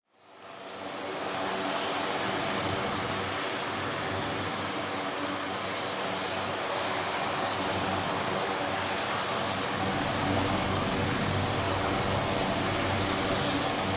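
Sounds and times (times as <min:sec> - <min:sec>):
helicopter engine and rotor: 0:00.3 - 0:13.9
thin high whine: 0:09.4 - 0:13.9.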